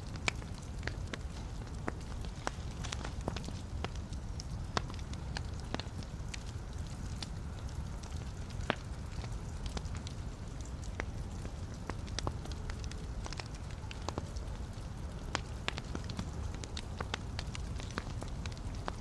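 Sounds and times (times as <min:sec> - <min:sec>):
burning wood popping and snapping: 0:00.0 - 0:19.0
low rumble of flames: 0:00.0 - 0:19.0.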